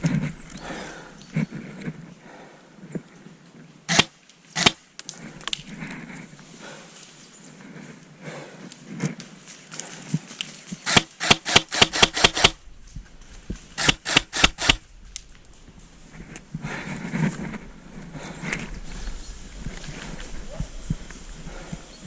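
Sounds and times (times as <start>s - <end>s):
airsoft gun firing: 3.9s - 4.8s, 10.9s - 12.6s, 13.8s - 14.8s.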